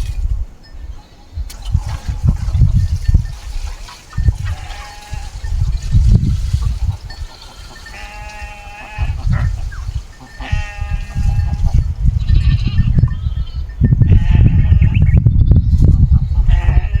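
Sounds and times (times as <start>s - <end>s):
goat or sheep bleating: 3.5s - 6.0s, 7.2s - 15.0s, 16.5s - 17.0s.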